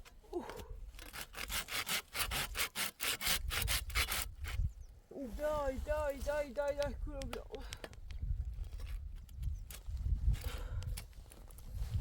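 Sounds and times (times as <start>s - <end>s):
hand saw cutting wood: 1.0s - 4.6s.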